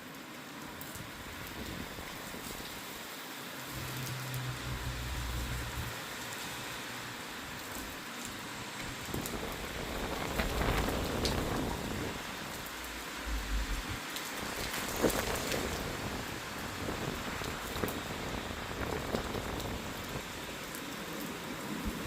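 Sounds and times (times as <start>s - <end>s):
rain pattering: 0.0s - 22.0s
low rumbles: 3.8s - 6.0s, 9.1s - 16.3s.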